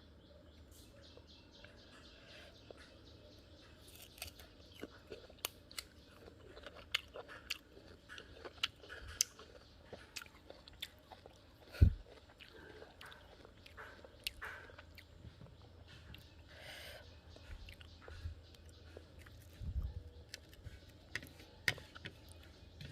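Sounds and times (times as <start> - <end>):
fruit crunching while chewed: 3.8 - 15.2.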